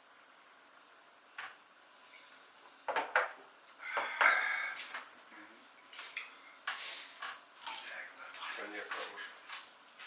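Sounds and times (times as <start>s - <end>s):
tableware clicking and knocking: 2.9s - 3.4s.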